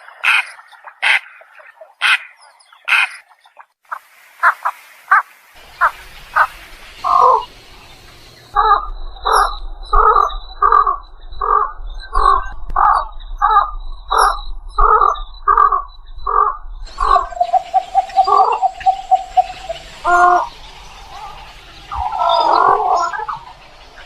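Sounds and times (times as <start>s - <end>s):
egret harsh croaking calls: 0.0s - 3.4s, 8.5s - 23.7s.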